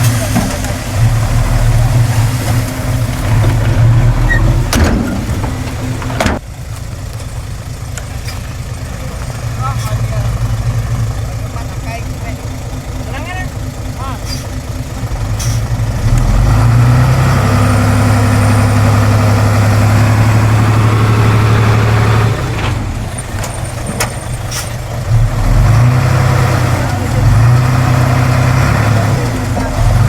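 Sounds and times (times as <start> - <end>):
heavy diesel engine droning: 0.0 - 30.0.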